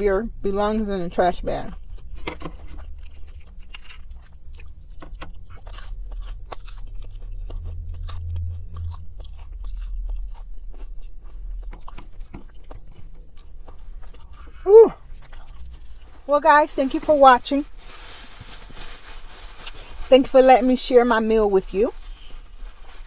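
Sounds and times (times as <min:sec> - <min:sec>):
crunchy chewing: 0:01.6 - 0:16.3.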